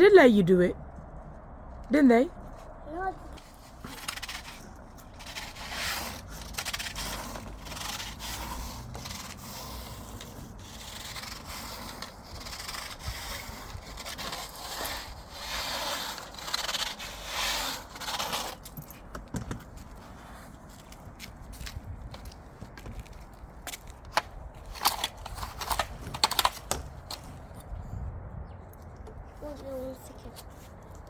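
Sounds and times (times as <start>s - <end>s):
vacuum floor tool scraping grass: 3.8s - 18.7s.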